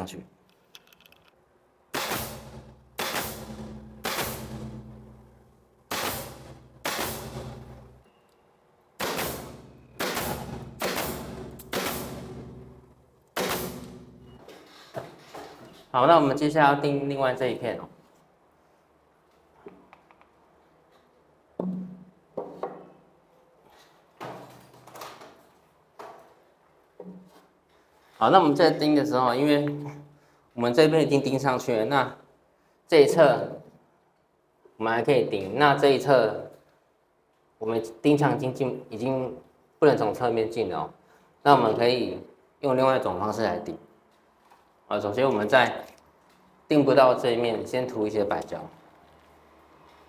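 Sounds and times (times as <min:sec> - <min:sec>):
nail gun firing: 0:01.9 - 0:05.3, 0:05.9 - 0:08.0, 0:09.0 - 0:14.3.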